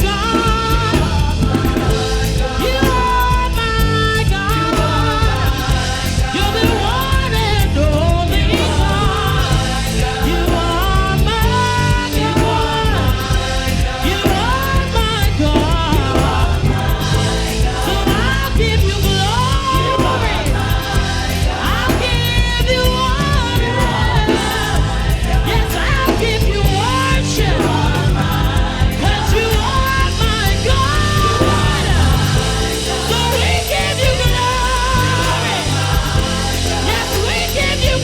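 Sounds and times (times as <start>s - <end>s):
people singing: 0.0s - 38.0s
worship band music: 0.0s - 38.0s.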